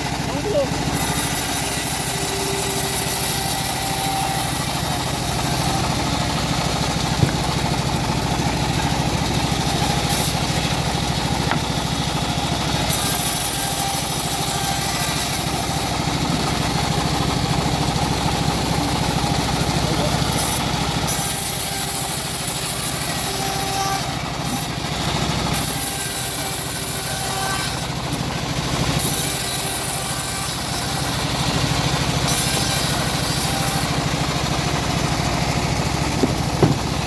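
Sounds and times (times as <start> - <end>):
sawmill engine running: 0.0 - 37.0
sharp knock: 36.2 - 37.0.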